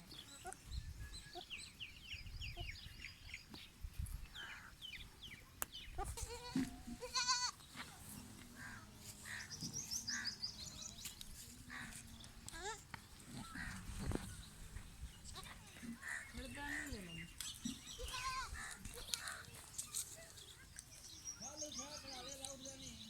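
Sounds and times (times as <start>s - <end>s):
goat bleating: 6.0s - 7.6s, 18.0s - 19.3s.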